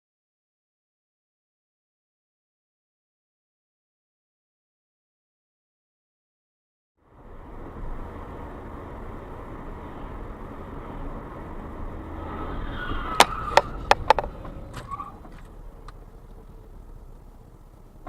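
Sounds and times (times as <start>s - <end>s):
car engine and road noise: 7.0s - 18.0s.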